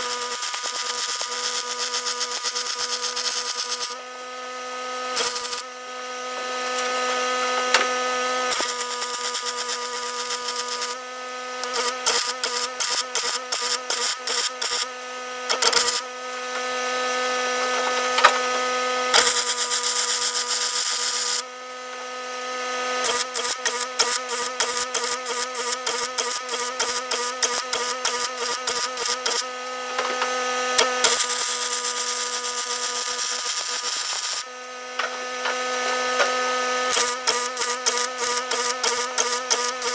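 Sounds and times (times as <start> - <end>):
short quick welding bursts: 0.0 - 4.0, 5.2 - 5.6, 8.5 - 11.0, 11.6 - 14.9, 15.6 - 16.0, 19.2 - 21.4, 31.1 - 34.4, 36.9 - 39.9
welding arc hissing: 0.0 - 4.0, 5.2 - 5.6, 8.5 - 11.0, 11.6 - 14.9, 15.5 - 16.0, 19.2 - 21.4, 23.0 - 29.4, 31.0 - 34.5, 36.9 - 39.9
constant buzzing hum: 0.0 - 39.9.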